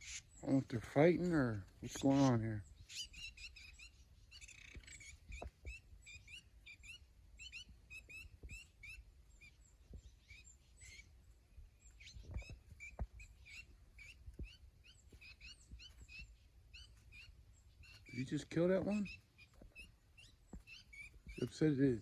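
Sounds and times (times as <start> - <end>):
birds chirping faintly: 0.0 - 22.0
soft low thumps: 11.6 - 16.3.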